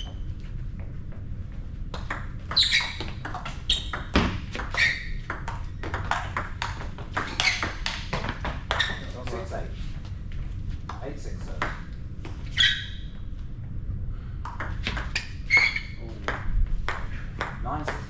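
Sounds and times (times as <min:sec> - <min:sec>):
table tennis ball pinging: 0:01.9 - 0:09.1, 0:10.9 - 0:12.0, 0:14.5 - 0:18.0.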